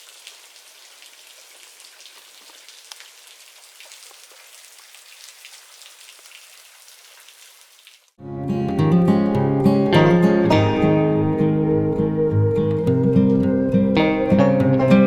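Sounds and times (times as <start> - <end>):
rain pattering: 0.0 - 8.2
strummed acoustic guitar music: 8.2 - 15.0.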